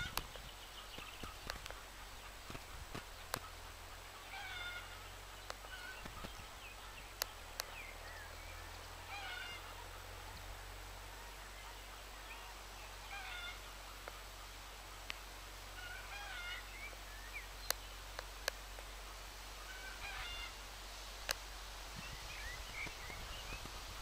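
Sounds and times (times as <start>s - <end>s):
bird calling: 0.0s - 18.5s, 19.6s - 20.6s
low steady rumble: 0.0s - 24.0s
sharp clicks: 7.1s - 7.8s.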